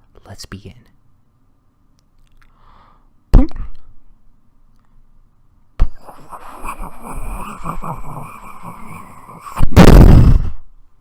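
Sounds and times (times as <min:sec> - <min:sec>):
sharp hit: 0:09.7 - 0:10.5.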